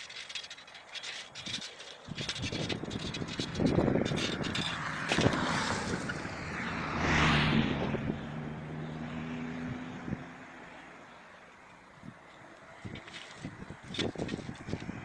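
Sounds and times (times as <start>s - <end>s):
vehicle passing by: 3.5s - 11.5s.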